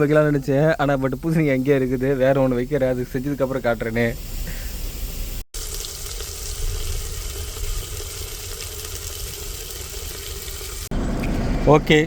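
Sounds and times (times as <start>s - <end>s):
food sizzling in a pan: 4.4s - 10.9s.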